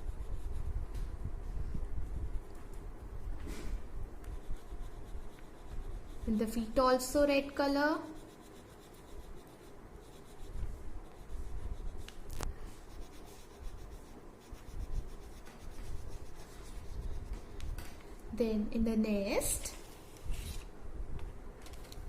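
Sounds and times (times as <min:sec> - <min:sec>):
crayon scratching on paper: 0:00.0 - 0:00.8, 0:04.2 - 0:17.6.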